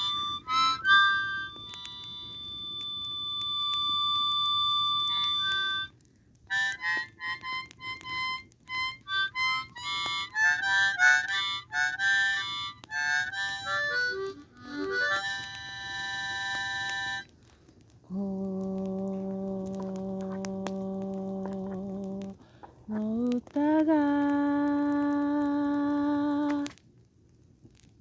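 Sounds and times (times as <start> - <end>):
harmonica melody: 0.0 - 17.3.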